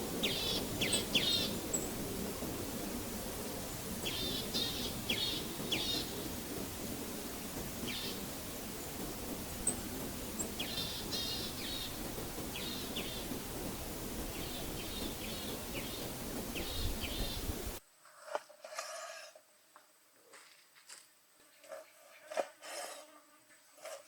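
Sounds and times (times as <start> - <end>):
small birds chirping: 0.0 - 17.8
steady rushing noise: 0.0 - 17.8.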